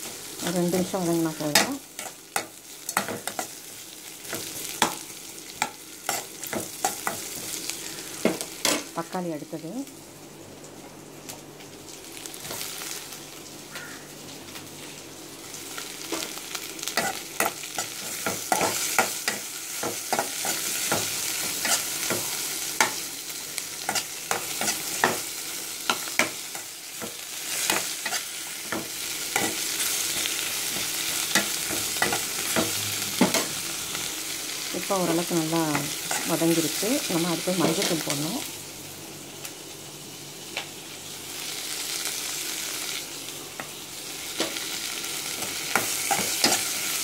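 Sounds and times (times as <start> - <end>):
vegetables sizzling in oil: 0.0 - 47.0.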